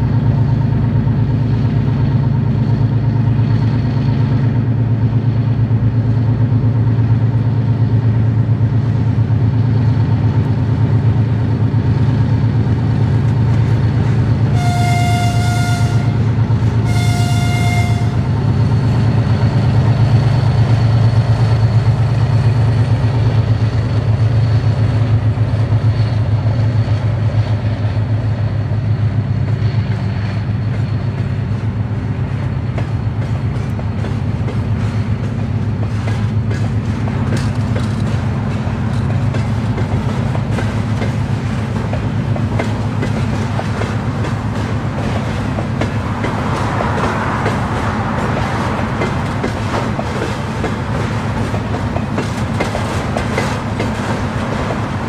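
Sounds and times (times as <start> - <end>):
locomotive horn blast: 14.5 - 18.5.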